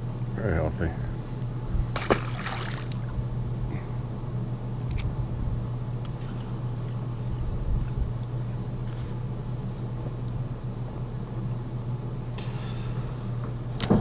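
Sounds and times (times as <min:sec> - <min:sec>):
boat engine droning: 0:12.2 - 0:14.0.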